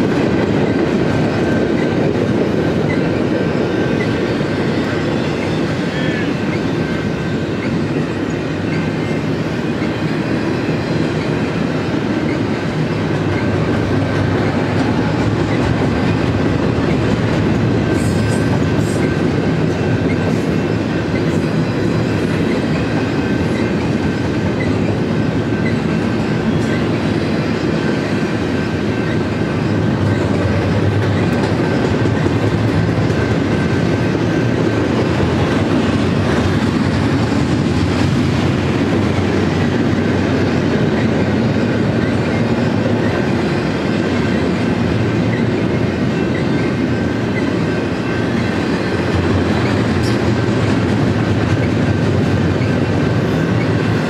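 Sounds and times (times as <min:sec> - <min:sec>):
steel wheels rolling on rails: 0:00.0 - 0:54.0.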